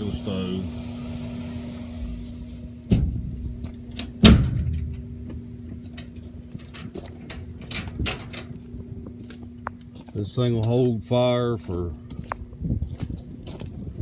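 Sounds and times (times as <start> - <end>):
blower fans humming: 0.0 - 14.0
metal door clanking: 1.2 - 8.6
light clicks and rattles: 5.8 - 9.8.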